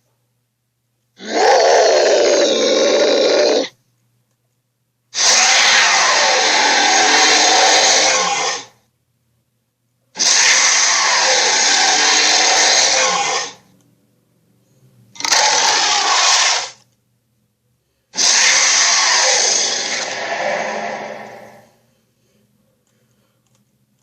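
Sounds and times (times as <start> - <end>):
dinosaur roaring: 1.2 - 3.7, 5.2 - 8.7, 10.2 - 13.6, 15.2 - 16.8, 18.2 - 21.8.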